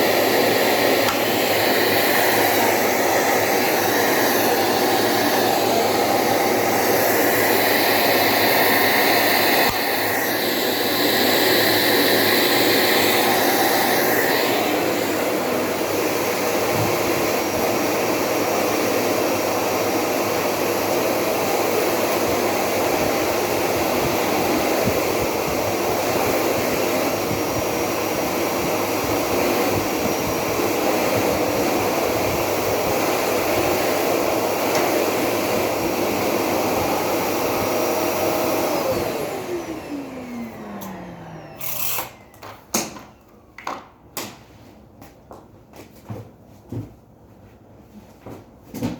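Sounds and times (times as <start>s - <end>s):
vacuum cleaner running: 0.0s - 44.4s.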